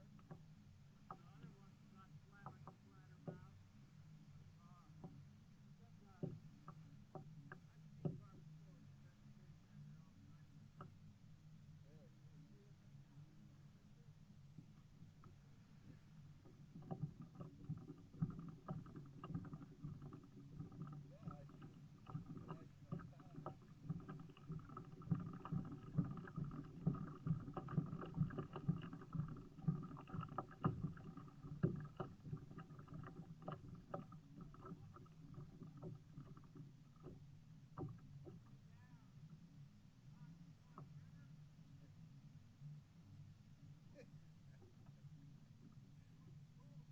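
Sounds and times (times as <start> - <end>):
moving water rumble: 12.0 - 46.9
knocks and clicks: 16.5 - 37.2.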